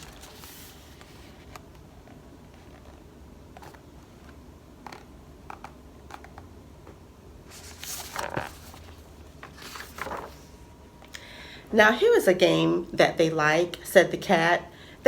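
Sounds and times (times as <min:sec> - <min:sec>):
paper page rustle: 0:00.0 - 0:05.0, 0:07.5 - 0:10.6.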